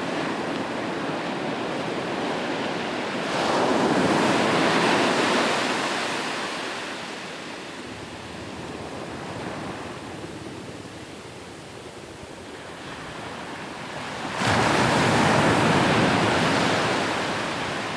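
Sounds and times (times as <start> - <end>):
sea waves on shore: 12.5 - 17.9.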